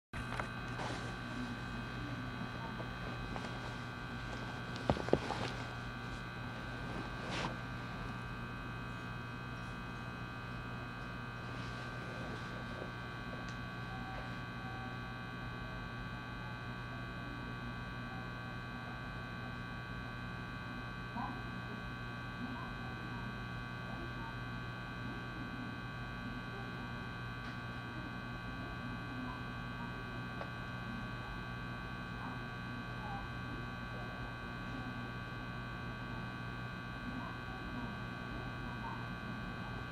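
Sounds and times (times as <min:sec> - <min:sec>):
train electrical hum: 0:00.2 - 0:20.0, 0:20.7 - 0:39.9.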